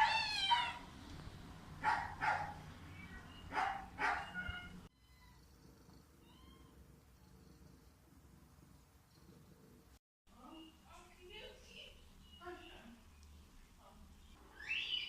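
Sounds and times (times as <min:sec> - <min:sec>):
cats meowing: 0:00.0 - 0:00.9, 0:02.8 - 0:05.5, 0:06.2 - 0:06.9.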